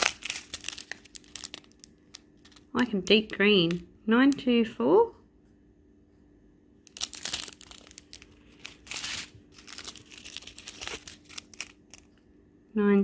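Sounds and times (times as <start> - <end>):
plastic packets crinkling: 0.0 - 3.8, 6.8 - 12.2.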